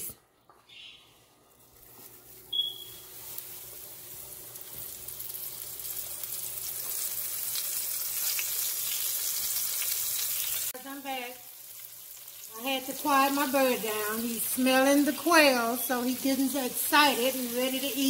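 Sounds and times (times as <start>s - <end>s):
bird chirp: 0.6s - 1.2s
meat frying in hot oil: 1.8s - 18.0s.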